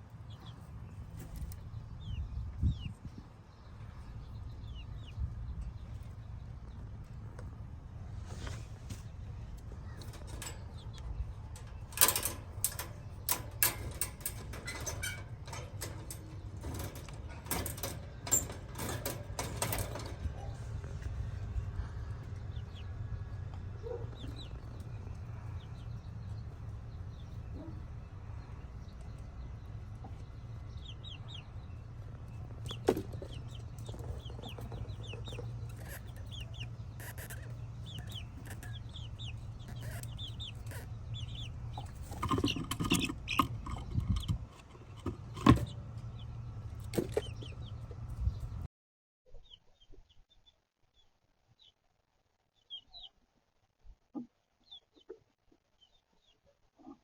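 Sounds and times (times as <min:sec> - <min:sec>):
steady low hum: 0:00.0 - 0:48.7
chickens clucking: 0:08.5 - 0:48.6.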